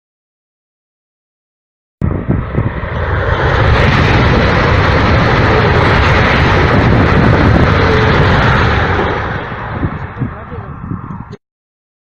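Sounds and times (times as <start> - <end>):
high-speed train passing: 2.0 - 11.4.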